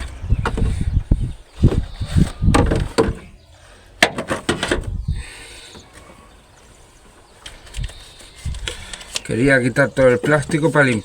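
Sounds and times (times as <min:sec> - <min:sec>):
clicks and knocks of car parts: 0:02.5 - 0:03.3, 0:04.0 - 0:04.9.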